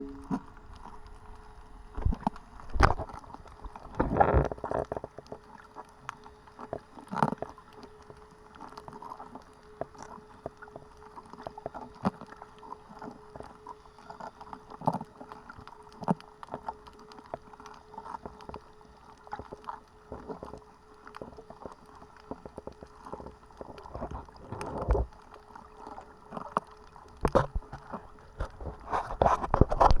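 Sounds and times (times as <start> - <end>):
faint steady hum: 0.0 - 30.0
muffled underwater water movement: 0.0 - 30.0
underwater clicks and knocks: 27.2 - 30.0.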